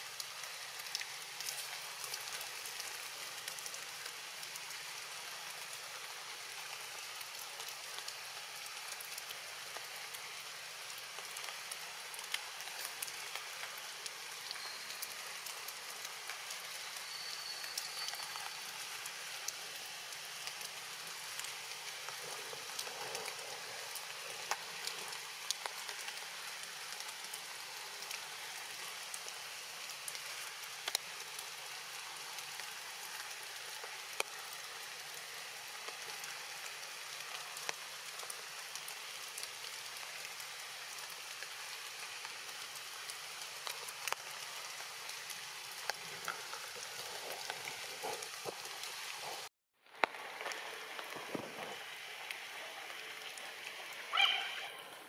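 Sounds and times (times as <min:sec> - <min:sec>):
rain falling on leaves: 0:00.0 - 0:55.0
raindrop ticks: 0:00.1 - 0:55.0.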